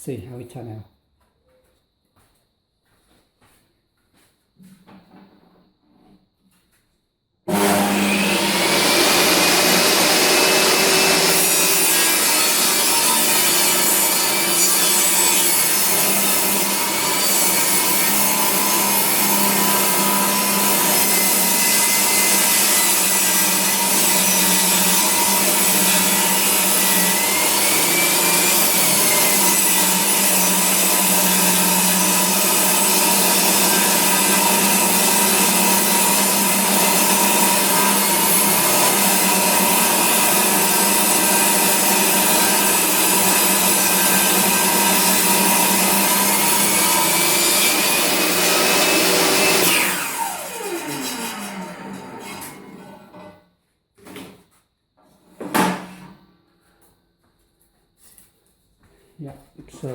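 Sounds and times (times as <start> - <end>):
table saw ripping a board: 7.5 - 53.4.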